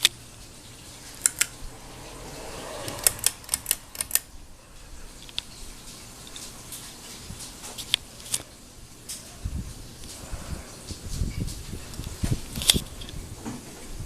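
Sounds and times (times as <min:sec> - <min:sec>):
ceiling fan humming: 0:00.0 - 0:14.0
sharp clicks: 0:02.9 - 0:04.3.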